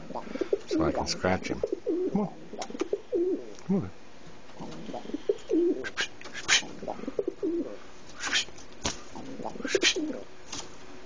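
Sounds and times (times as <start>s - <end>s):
bird cooing: 1.7s - 3.5s, 4.6s - 6.0s, 6.6s - 7.8s, 9.2s - 10.3s.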